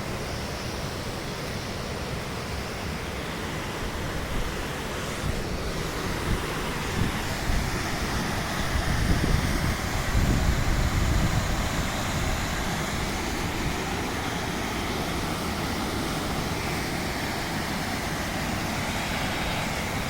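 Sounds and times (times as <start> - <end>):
steady rushing hiss: 0.0 - 20.0
wind buffeting microphone: 5.2 - 14.0.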